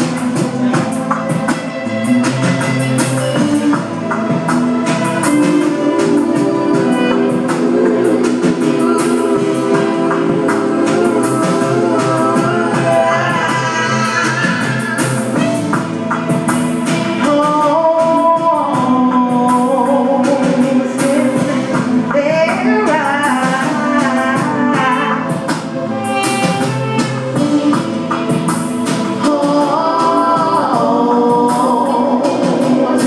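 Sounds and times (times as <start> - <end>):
electronic music beat: 0.0 - 17.3, 22.9 - 29.2
woman singing: 5.1 - 15.7, 17.0 - 28.4, 29.0 - 33.0.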